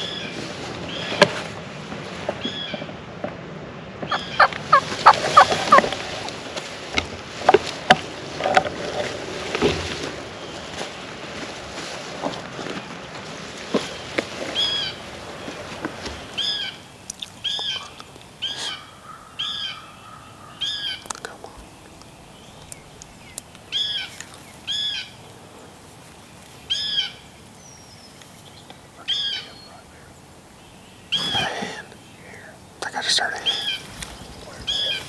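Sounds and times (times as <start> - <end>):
brush snapping and rustling: 4.0 - 19.3, 20.1 - 35.0
bird calling: 4.1 - 6.1, 13.7 - 35.0.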